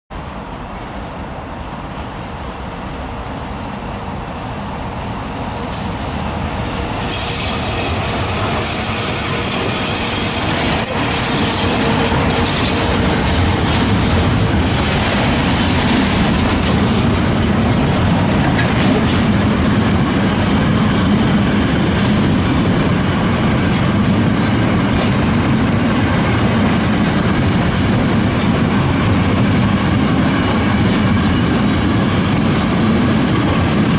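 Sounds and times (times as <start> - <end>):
electric locomotive passing: 0.2 - 33.9
wheels clattering over rails: 7.0 - 19.6
freight wagons rumbling: 7.0 - 33.0.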